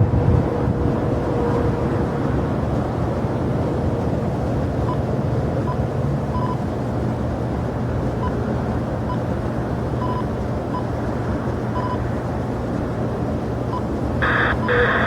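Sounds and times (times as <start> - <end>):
wind on microphone: 0.0 - 2.1
jet engines rumbling: 11.1 - 15.0
faint high beeps: 14.2 - 15.0.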